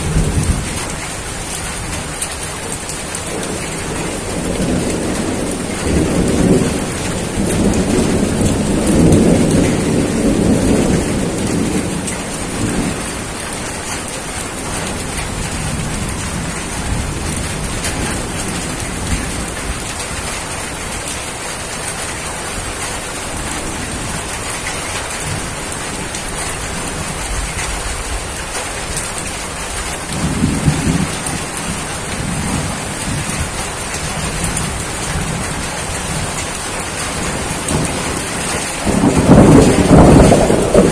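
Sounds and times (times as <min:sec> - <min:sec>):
thunder rumbling: 0:00.0 - 0:21.1, 0:22.1 - 0:40.9
heavy rainfall: 0:00.0 - 0:40.9.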